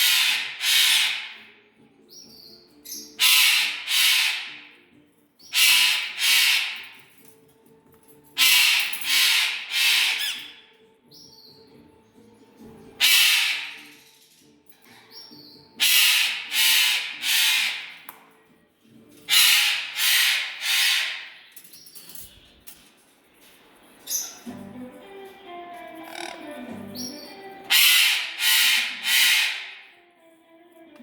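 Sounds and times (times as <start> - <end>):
bird squawking harshly: 0.0 - 1.4, 3.2 - 4.8, 5.4 - 7.0, 8.4 - 10.6, 13.0 - 13.9, 15.8 - 18.1, 19.3 - 21.5, 26.1 - 26.5, 27.7 - 29.9.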